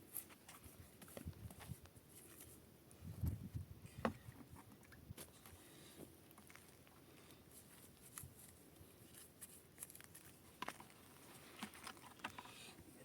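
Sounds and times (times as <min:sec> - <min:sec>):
faint clicks and rustles: 0:03.2 - 0:13.0.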